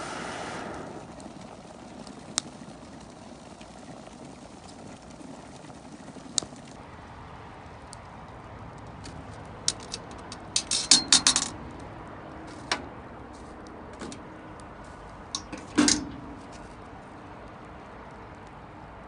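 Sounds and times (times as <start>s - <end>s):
metal cookware clinking: 9.7s - 11.6s, 15.4s - 16.6s.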